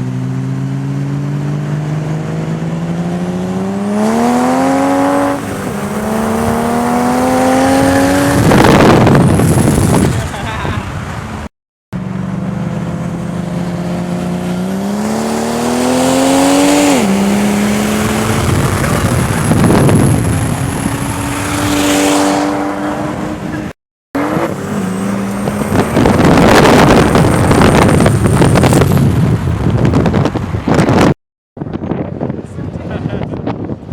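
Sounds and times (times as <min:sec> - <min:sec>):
car engine accelerating hard: 0:00.0 - 0:10.5, 0:12.0 - 0:31.0
loud rushing noise: 0:13.6 - 0:30.9.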